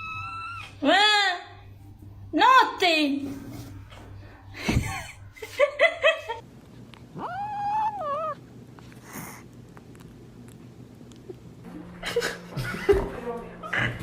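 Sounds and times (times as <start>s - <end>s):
pet animal yelping and calling: 7.1s - 8.4s.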